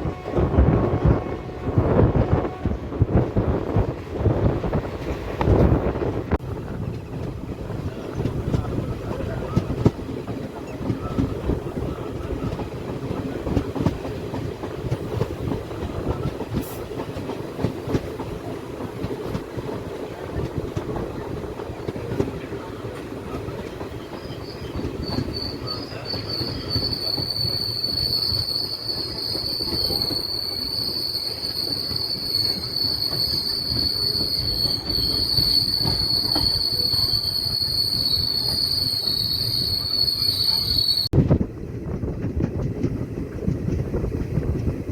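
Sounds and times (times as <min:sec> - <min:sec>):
train wheels rumbling: 0:00.0 - 0:44.9
wheel squeal against rail: 0:23.7 - 0:41.1.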